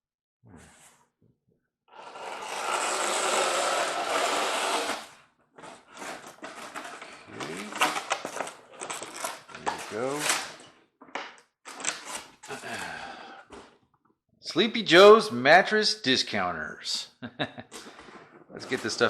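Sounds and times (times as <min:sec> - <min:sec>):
packaging scraping in cardboard box: 0:02.0 - 0:10.6, 0:17.9 - 0:19.0
packaging rustling: 0:05.6 - 0:10.6.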